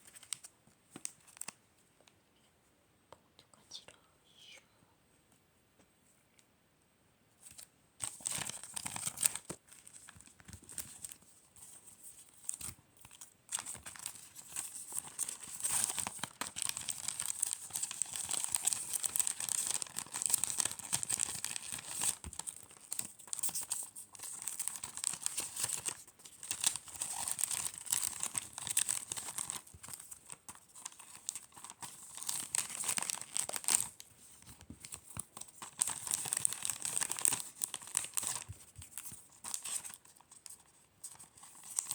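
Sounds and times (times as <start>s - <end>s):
packaging crinkling and tearing: 0.0s - 1.6s, 8.0s - 11.2s, 12.2s - 41.9s.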